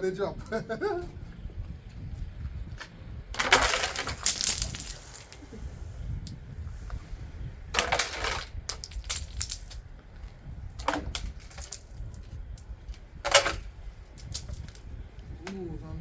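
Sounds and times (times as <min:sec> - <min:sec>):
ice and snow clattering down: 0:03.4 - 0:05.4.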